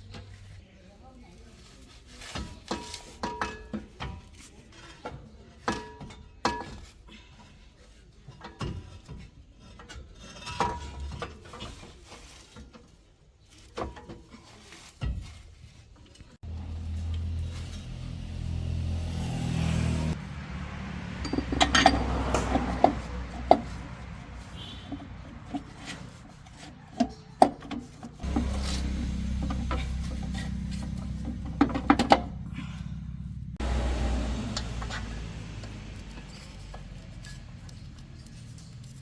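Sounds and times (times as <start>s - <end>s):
metal tools clinking: 21.2s - 23.8s
low machine hum: 28.2s - 35.6s.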